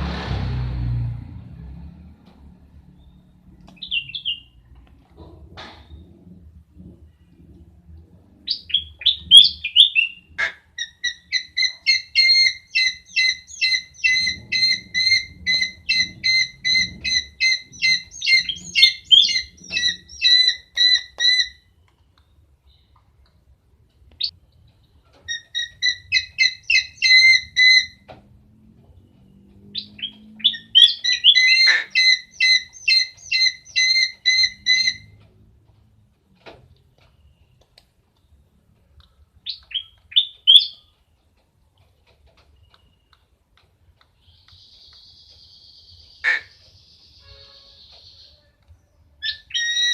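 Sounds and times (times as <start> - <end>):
owl chirping calls: 3.8 - 4.6, 8.5 - 21.7, 25.3 - 28.1, 29.8 - 35.2, 39.4 - 40.9, 44.3 - 48.5, 49.2 - 49.9.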